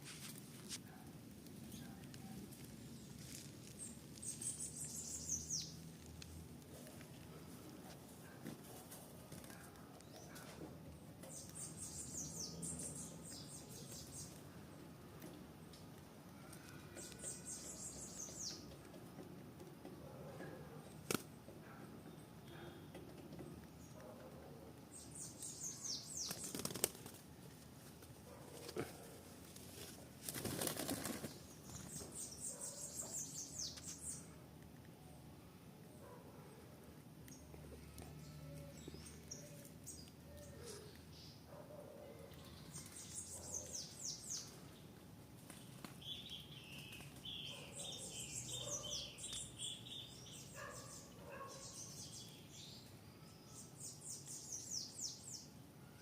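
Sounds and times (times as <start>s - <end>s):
faint background noise: 0.0s - 56.0s
bird singing: 3.8s - 5.9s, 11.2s - 14.4s, 16.6s - 18.7s, 24.9s - 26.5s, 31.4s - 34.4s, 46.0s - 56.0s
bird wings flapping: 26.2s - 27.2s, 30.2s - 31.4s.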